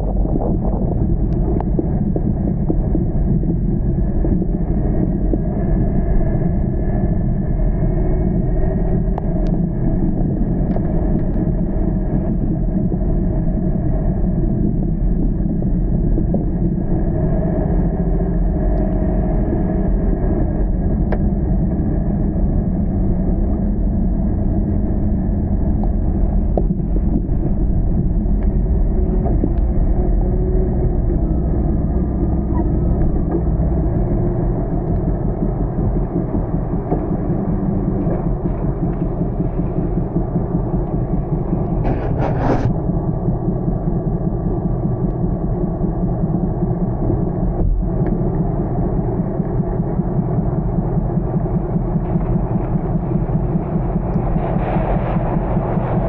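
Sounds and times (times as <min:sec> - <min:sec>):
car engine and tyre rumble: 0:16.9 - 0:56.0.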